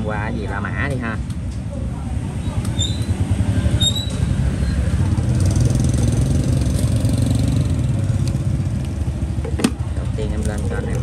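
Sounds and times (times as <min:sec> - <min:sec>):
people talking: 0:09.8 - 0:11.0.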